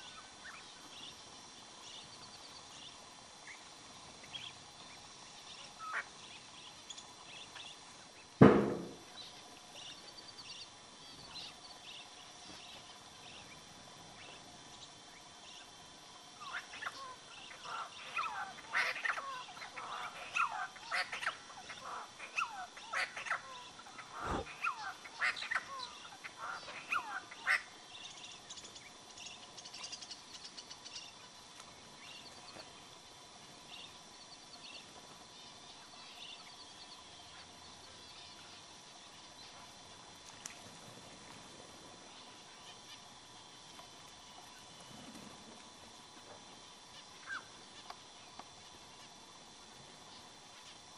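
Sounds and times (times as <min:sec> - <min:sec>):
birds calling: 0:00.0 - 0:32.8, 0:46.8 - 0:48.0
dull thump: 0:08.4 - 0:09.0.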